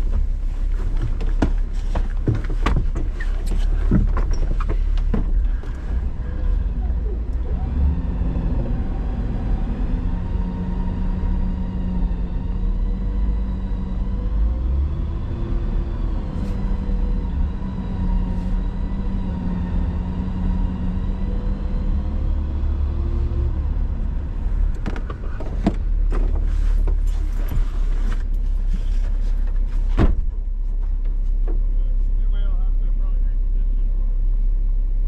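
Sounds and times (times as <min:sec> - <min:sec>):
vehicle engine rumbling: 0:00.0 - 0:35.0
sharp knocks and clatter: 0:00.9 - 0:05.4.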